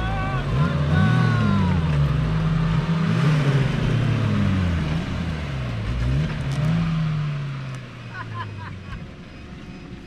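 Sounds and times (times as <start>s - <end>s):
engines revving hard: 0.0s - 7.9s.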